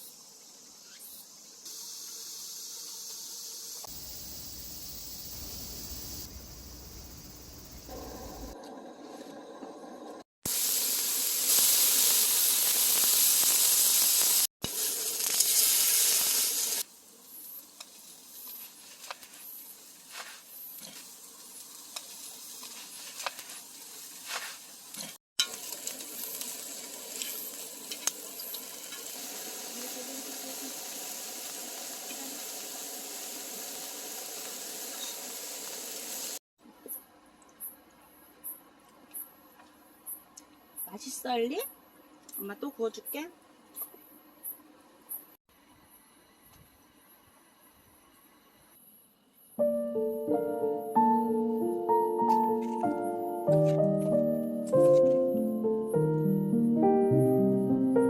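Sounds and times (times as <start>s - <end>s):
food sizzling on a hot pan: 10.5s - 36.4s.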